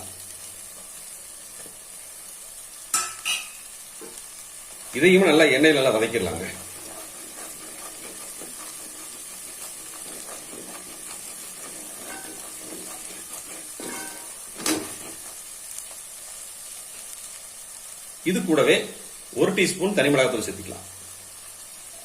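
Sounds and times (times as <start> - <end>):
paste sizzling in oil: 0.0 - 22.0.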